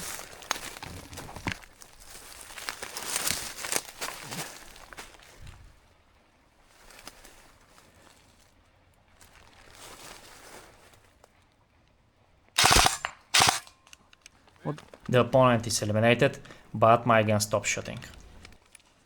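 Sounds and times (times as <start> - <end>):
rustling through brush: 0.0 - 5.9, 6.6 - 11.3
airsoft rifle fire bursts: 12.6 - 13.8.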